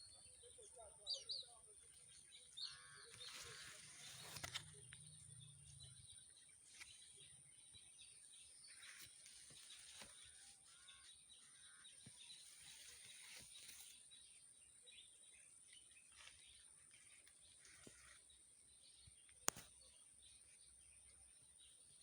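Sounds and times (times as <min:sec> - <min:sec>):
small clicks: 0:04.1 - 0:05.0.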